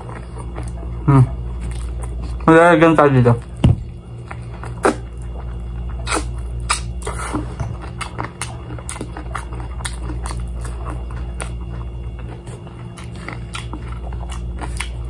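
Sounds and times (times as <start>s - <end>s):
chewing crispy chicken: 0.0s - 2.5s, 3.4s - 15.0s
steady low hum: 0.0s - 15.0s.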